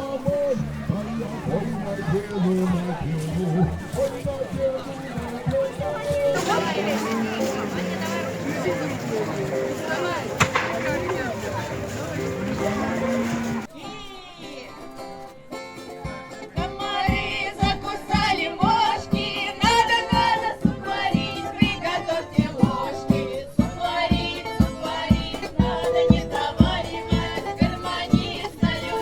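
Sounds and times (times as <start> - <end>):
voices singing folk song: 0.0 - 15.2, 15.8 - 29.0
steady beat: 4.5 - 13.7.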